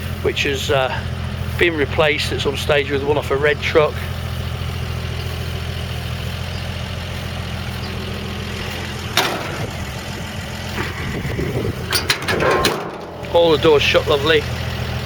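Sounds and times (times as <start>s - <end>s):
car engine idling: 0.0s - 15.0s
sharp clunk: 8.7s - 10.1s, 11.8s - 13.8s.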